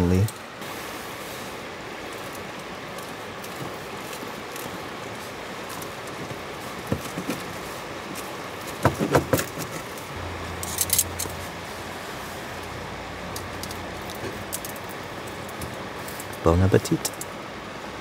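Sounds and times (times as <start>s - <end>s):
steady low hiss: 0.0s - 18.0s
low hum: 10.0s - 16.4s.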